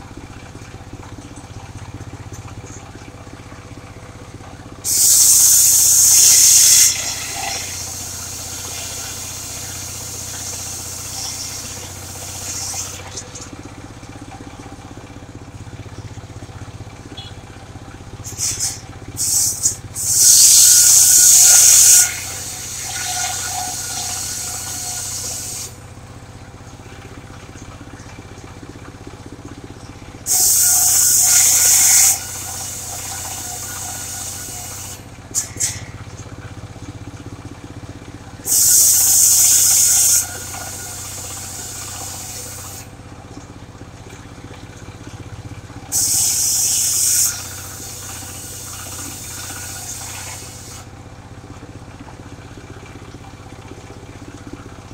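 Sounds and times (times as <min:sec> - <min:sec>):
sawmill engine running: 0:00.0 - 0:54.9
saw blade cutting wood: 0:04.9 - 0:13.0, 0:18.3 - 0:25.8, 0:30.3 - 0:36.0, 0:38.5 - 0:42.9.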